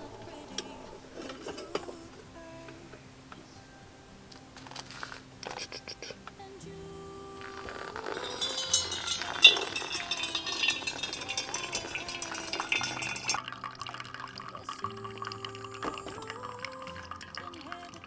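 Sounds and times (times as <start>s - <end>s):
background music: 0.0s - 18.0s
fizzy liquid pouring into cup: 7.6s - 18.0s.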